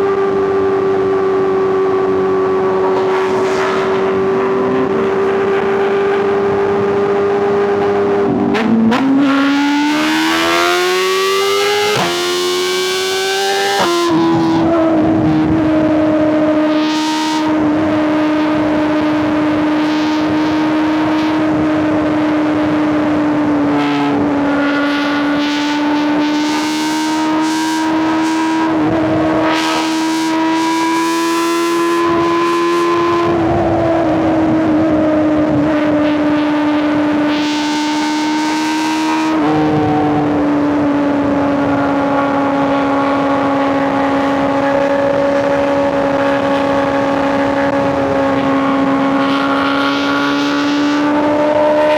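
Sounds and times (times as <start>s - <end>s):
motorcycle engine cruising: 0.0s - 51.9s
wind rush: 1.6s - 8.6s.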